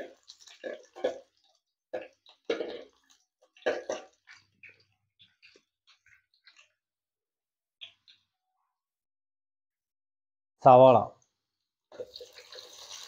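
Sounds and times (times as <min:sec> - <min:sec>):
spices frying in hot oil: 0:00.0 - 0:06.8, 0:11.9 - 0:13.0.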